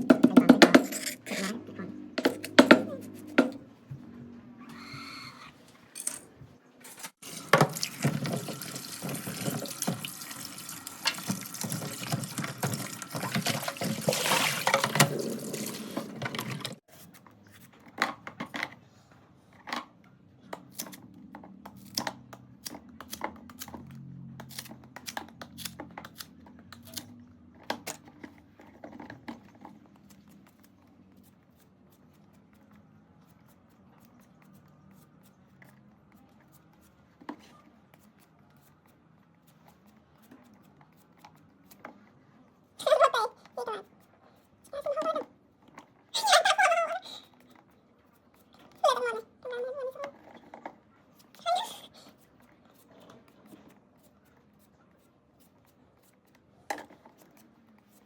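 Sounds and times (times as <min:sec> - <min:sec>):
water pouring and splashing: 0:07.2 - 0:16.8.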